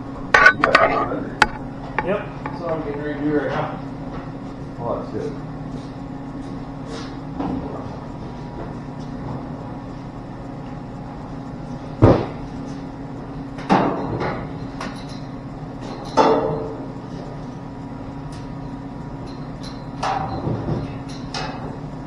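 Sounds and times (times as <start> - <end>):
steady background hum: 0.0 - 22.0
metal car parts clanking: 0.2 - 3.1.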